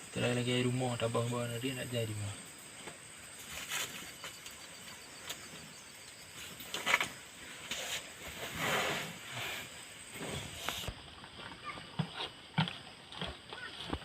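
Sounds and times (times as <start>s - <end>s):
cow chewing and crunching: 10.2s - 14.0s.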